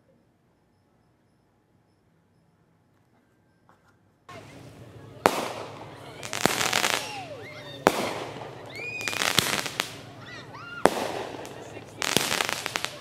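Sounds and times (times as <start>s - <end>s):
fireworks booming: 4.3s - 13.0s
fireworks crackling: 4.3s - 13.0s.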